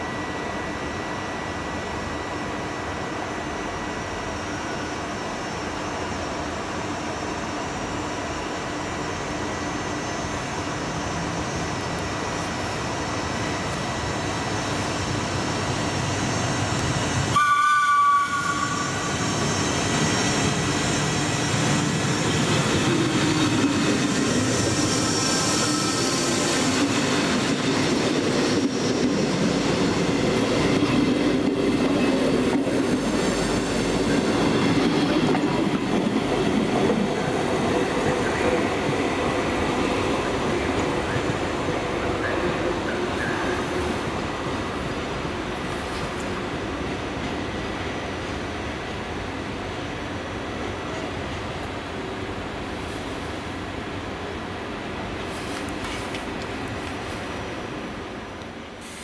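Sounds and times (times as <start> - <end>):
train passing with rumble: 0.0 - 59.0
train horn blast: 17.3 - 19.1.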